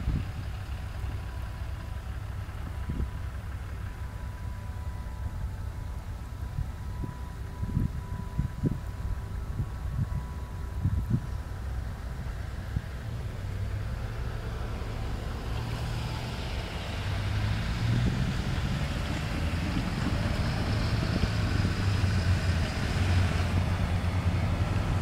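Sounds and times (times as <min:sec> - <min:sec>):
wind rumble on microphone: 0:00.0 - 0:03.6, 0:05.2 - 0:25.0
vehicle hissing on snowy street: 0:11.7 - 0:25.0.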